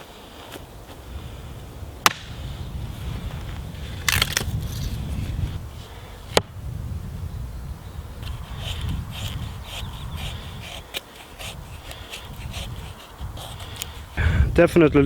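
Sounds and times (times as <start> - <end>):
dry wood cracking: 3.9 - 5.0.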